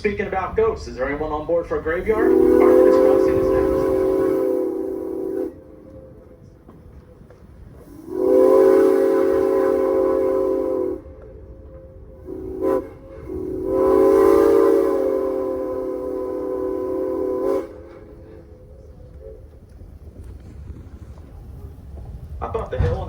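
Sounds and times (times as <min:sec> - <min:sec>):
low rumble of moving train: 0:00.0 - 0:23.0
steam whistle blasts: 0:02.0 - 0:06.6, 0:07.7 - 0:19.6.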